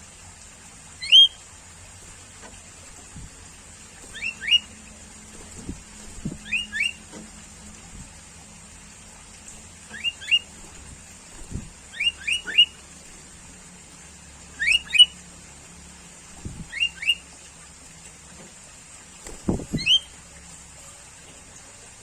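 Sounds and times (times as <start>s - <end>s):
bulbul calling rising notes: 4.1s - 4.8s, 6.4s - 7.0s, 11.5s - 12.8s.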